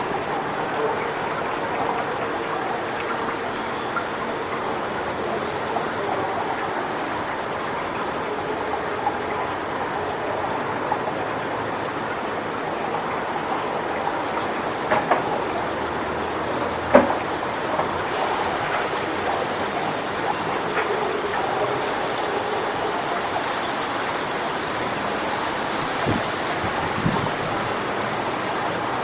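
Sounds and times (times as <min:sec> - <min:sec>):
wind rustling palm fronds: 0:00.0 - 0:29.0.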